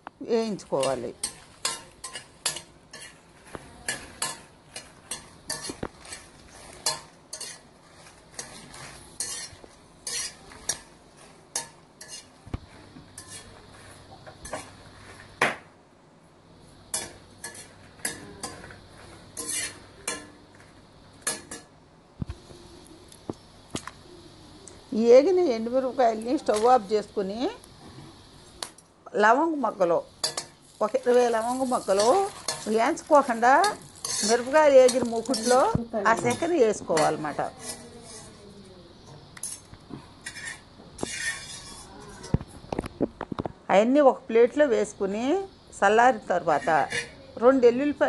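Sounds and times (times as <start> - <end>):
chillies sizzling in oil: 0.0 - 48.0
metal ladle scraping a pan: 0.8 - 15.3, 16.9 - 21.6, 30.2 - 38.4, 40.2 - 42.4, 46.4 - 47.2.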